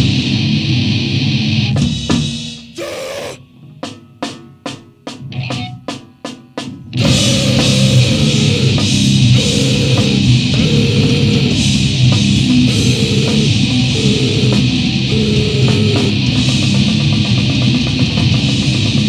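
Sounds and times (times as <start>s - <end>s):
heavy distorted band playing: 2.6s - 3.4s, 7.0s - 19.0s
drum strikes: 6.6s - 16.8s.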